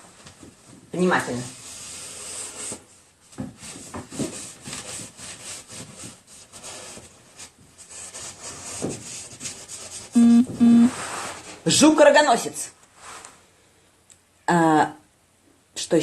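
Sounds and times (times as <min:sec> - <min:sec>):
drawing tool scratching paper: 0:03.6 - 0:10.2
low electronic tone: 0:10.2 - 0:11.0.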